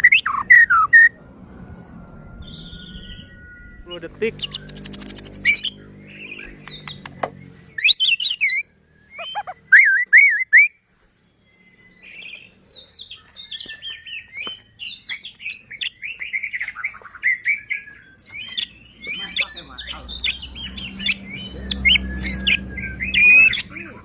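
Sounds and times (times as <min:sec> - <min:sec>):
bird singing whistled phrases: 0:01.8 - 0:07.0, 0:07.8 - 0:10.8, 0:11.4 - 0:24.0
sharp bird clicking notes: 0:06.4 - 0:07.4.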